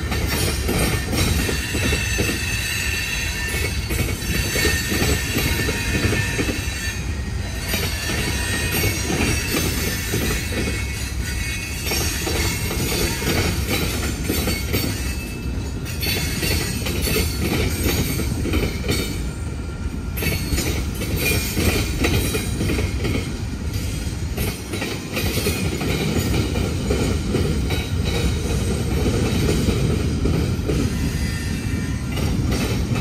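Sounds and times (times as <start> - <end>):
freight train wheels rumbling: 0.0 - 33.0.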